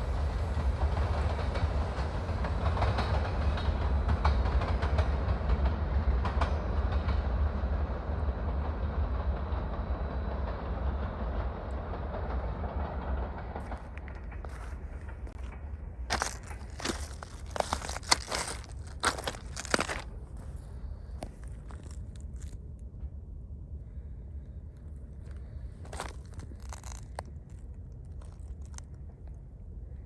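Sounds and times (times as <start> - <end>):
freight train cars rumbling: 0.0 - 30.0
train wheel clicks: 11.2 - 20.1.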